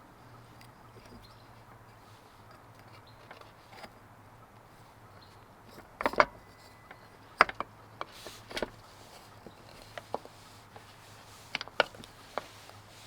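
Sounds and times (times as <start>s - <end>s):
sharp clicks and knocks: 5.7s - 12.8s.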